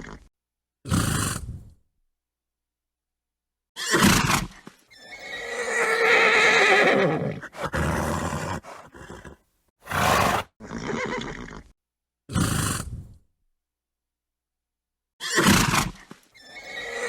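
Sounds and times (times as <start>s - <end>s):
horse neighing: 5.0s - 11.7s, 16.4s - 17.0s
horse breath bursts: 7.5s - 10.5s.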